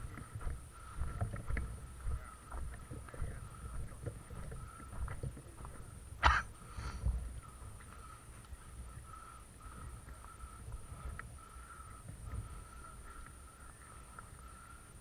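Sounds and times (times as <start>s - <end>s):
low thumps and rustling: 0.0s - 8.9s.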